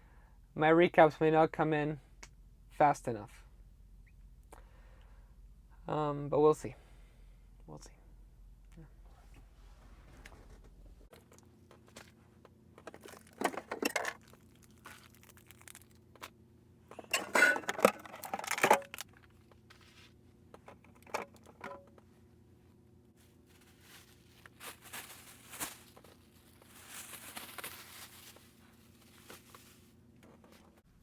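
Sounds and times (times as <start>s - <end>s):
faint low hum: 0.0s - 31.0s
rustling and crinkling: 9.1s - 16.3s, 17.9s - 22.0s, 23.2s - 30.9s.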